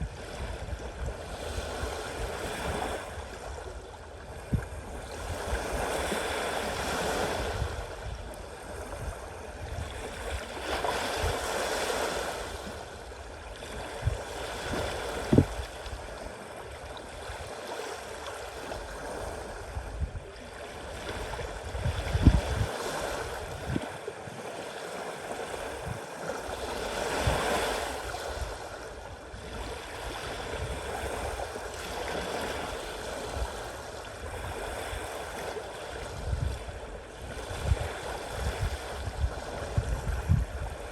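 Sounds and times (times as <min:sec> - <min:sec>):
sea waves washing: 0:00.3 - 0:40.9
low thumps on microphone: 0:15.3 - 0:15.6.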